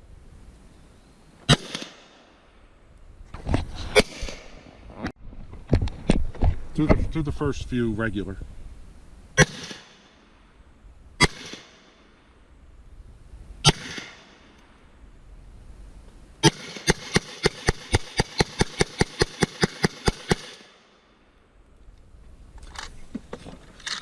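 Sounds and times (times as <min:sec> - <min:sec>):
semi-automatic gunshots: 0:01.5 - 0:02.3, 0:09.4 - 0:10.1, 0:11.2 - 0:12.0, 0:13.6 - 0:14.4, 0:16.4 - 0:20.9.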